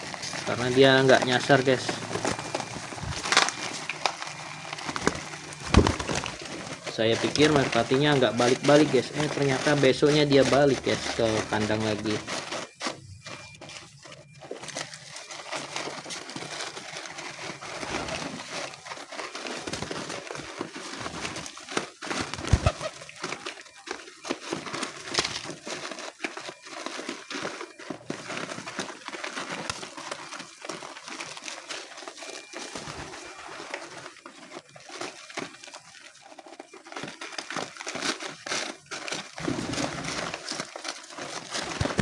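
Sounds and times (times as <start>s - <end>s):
pigeons rustling and fluttering: 0.0s - 42.0s.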